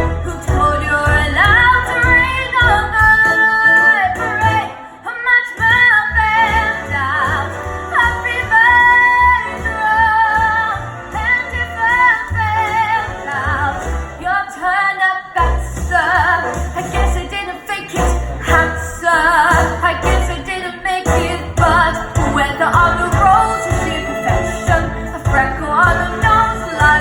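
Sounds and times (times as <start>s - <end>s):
backing track with bass line: 0.0s - 4.7s, 15.4s - 27.0s
woman singing with vibrato: 0.0s - 27.0s.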